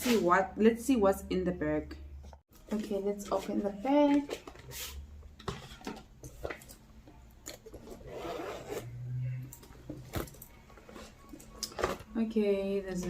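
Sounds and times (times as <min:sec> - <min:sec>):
zip pulled open: 0:07.8 - 0:09.5.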